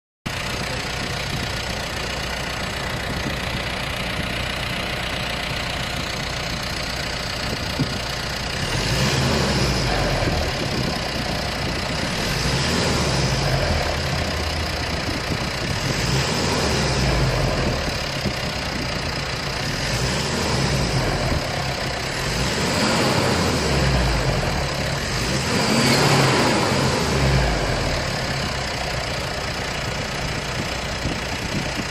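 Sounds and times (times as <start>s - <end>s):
diesel engine idling and revving: 0.3s - 31.9s.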